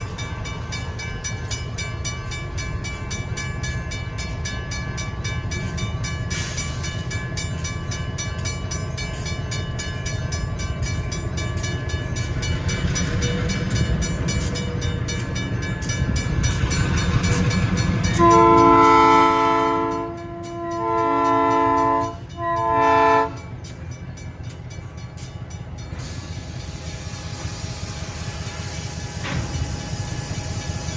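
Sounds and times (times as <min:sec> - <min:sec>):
locomotive engine rumbling: 0:00.0 - 0:30.9
air horn blasts: 0:18.2 - 0:23.4.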